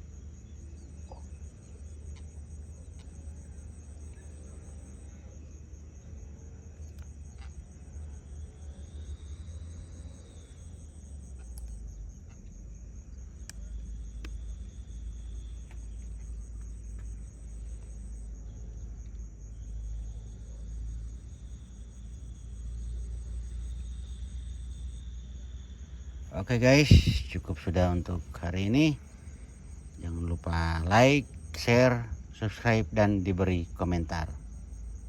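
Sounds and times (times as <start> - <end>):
insects trilling: 0.0 - 35.0
constant low rumble: 25.9 - 35.0.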